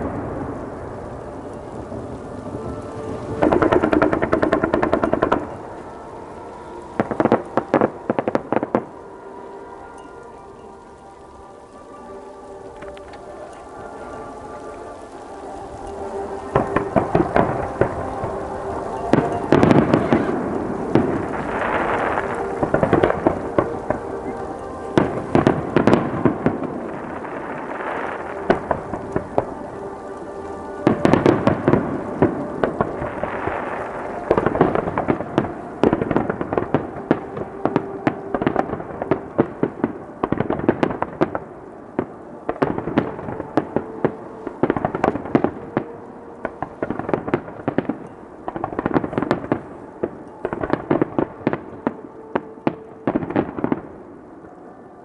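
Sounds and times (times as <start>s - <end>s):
fireworks bursts and crackling: 0.0s - 55.0s.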